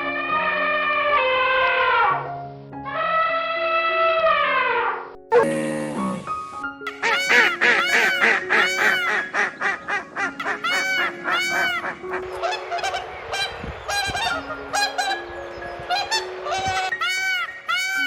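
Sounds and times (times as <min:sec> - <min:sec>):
bird calling loudly: 0:06.9 - 0:18.0.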